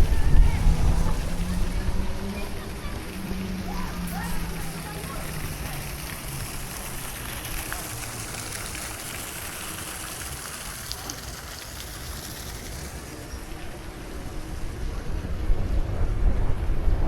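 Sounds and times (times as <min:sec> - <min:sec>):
wind rumble on microphone: 0:00.0 - 0:07.6, 0:13.4 - 0:17.0.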